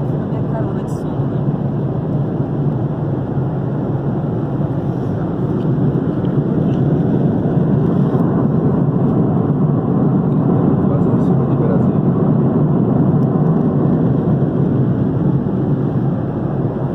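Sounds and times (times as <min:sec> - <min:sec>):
airliner cabin jet engine noise: 0:00.0 - 0:16.9.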